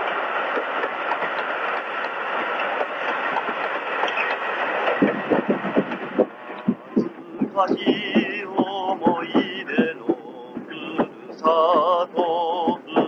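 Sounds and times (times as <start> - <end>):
train running rumble and rattle: 0.0 - 13.0
wheels clacking over rail joints: 0.0 - 13.0.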